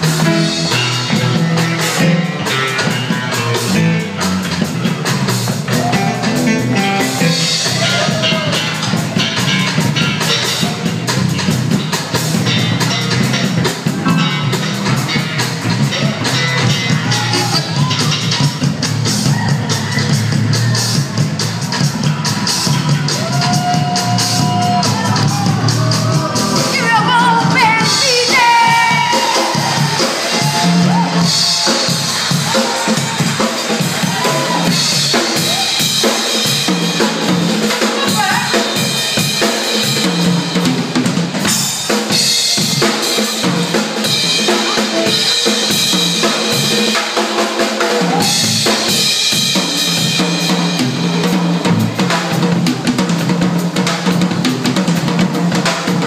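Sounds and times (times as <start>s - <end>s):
bass line: 0.0s - 46.9s, 47.8s - 56.0s
drum kit beat: 0.0s - 56.0s
live band playing: 0.0s - 56.0s.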